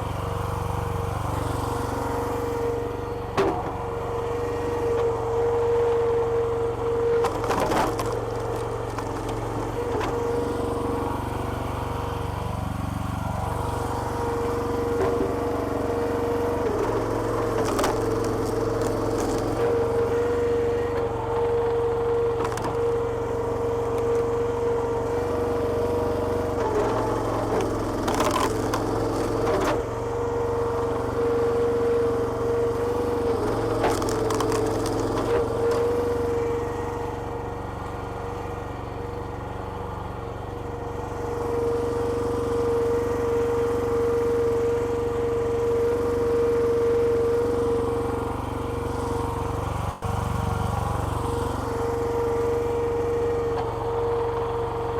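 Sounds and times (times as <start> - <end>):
log splitter engine whining: 0.0 - 54.9
logs cracking and splitting: 7.1 - 10.6, 14.6 - 21.8, 23.8 - 29.9, 32.8 - 36.1.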